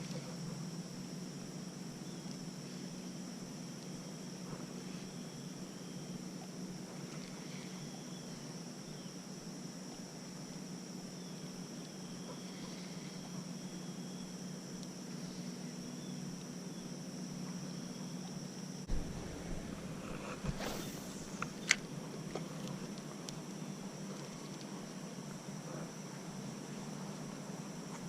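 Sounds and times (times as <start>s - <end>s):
insects chirring: 0.0s - 28.0s
low hum: 9.9s - 25.1s.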